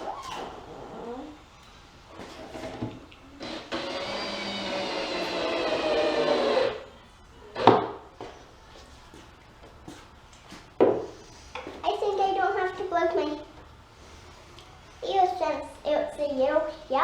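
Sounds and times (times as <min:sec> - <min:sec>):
power drill driving a screw: 0:03.4 - 0:06.8.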